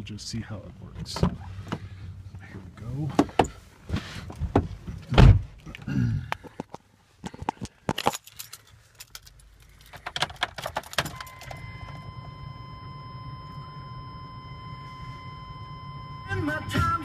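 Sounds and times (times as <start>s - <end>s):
keys jingling: 7.9s - 11.6s
diesel engine starting and idling: 11.2s - 17.0s
steady high tone: 11.2s - 17.0s.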